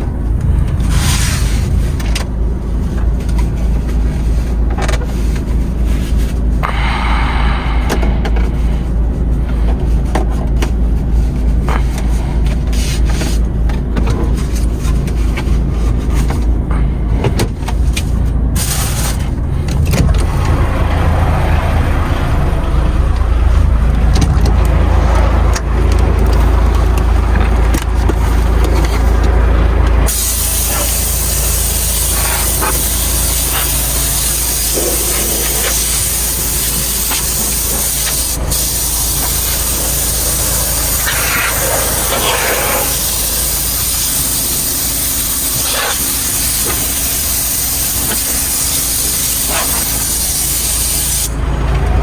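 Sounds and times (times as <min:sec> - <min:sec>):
truck engine rumbling: 0:00.0 - 0:52.0
steady hiss: 0:30.1 - 0:51.3.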